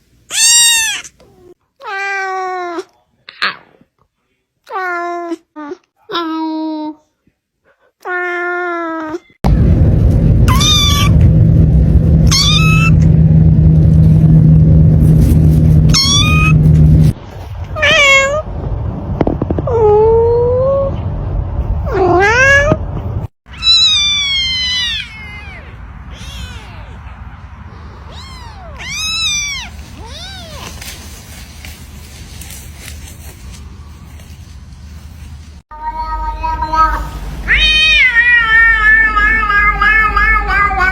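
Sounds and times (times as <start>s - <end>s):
kitten meowing: 0.3s - 1.2s, 10.5s - 11.2s, 12.3s - 13.0s, 15.9s - 16.6s, 17.8s - 18.4s, 23.5s - 27.0s, 28.1s - 30.7s, 35.9s - 40.9s
adult cat meowing: 0.3s - 2.9s, 12.3s - 13.0s, 15.9s - 16.6s, 17.8s - 18.4s, 35.7s - 40.9s
loud low rumble: 9.4s - 23.3s, 33.4s - 40.9s.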